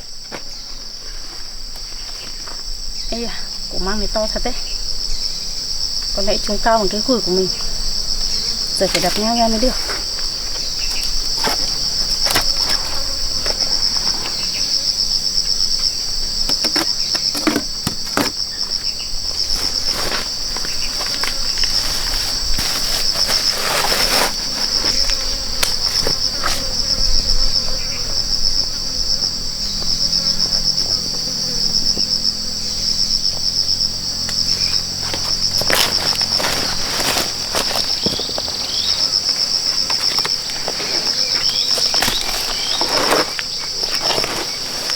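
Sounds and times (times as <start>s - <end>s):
insects trilling: 0.0s - 44.9s
blade chopping bamboo: 16.5s - 18.5s.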